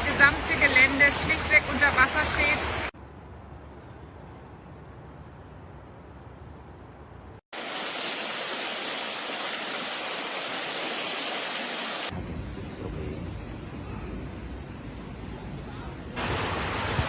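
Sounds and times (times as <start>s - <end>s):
floodwater rushing: 0.0s - 3.0s, 7.5s - 12.1s.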